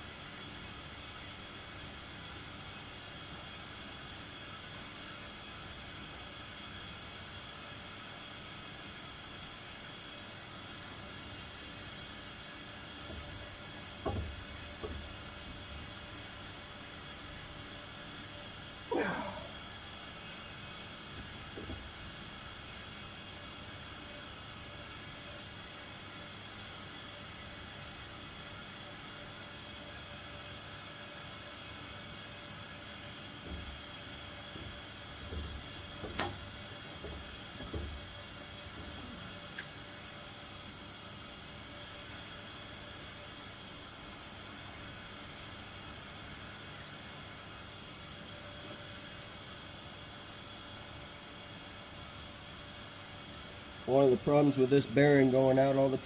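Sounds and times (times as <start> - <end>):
background hiss: 7.9 - 29.7, 30.5 - 56.0
soft knocks: 13.0 - 15.9, 21.1 - 22.4, 33.4 - 33.9, 34.5 - 39.3
sharp click: 36.0 - 36.5.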